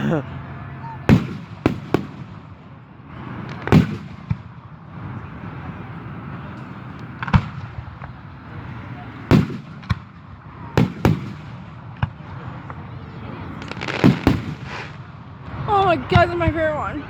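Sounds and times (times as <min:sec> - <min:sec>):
fireworks booming: 0:01.0 - 0:17.0
fireworks pops: 0:03.4 - 0:04.6, 0:06.9 - 0:08.2, 0:13.6 - 0:15.1.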